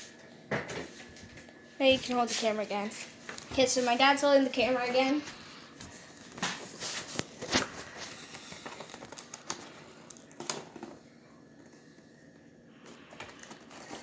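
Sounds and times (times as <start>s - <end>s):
box and packaging crinkling: 6.1s - 11.0s, 12.9s - 14.0s.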